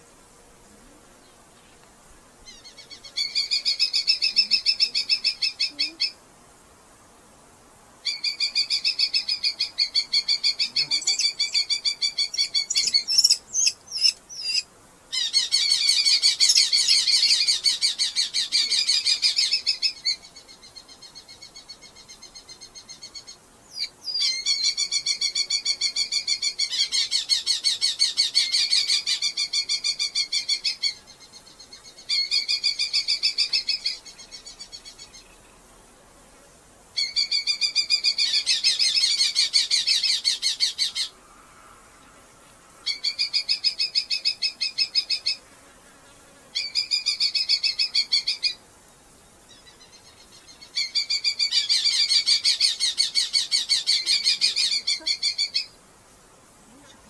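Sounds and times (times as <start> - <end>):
falcons chattering calls: 9.9 - 14.6.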